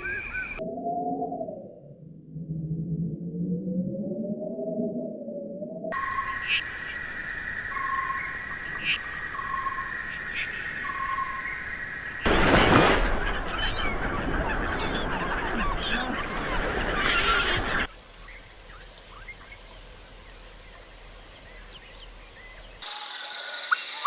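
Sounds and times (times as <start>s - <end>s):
flock of birds calling: 7.8s - 11.4s, 12.3s - 17.9s.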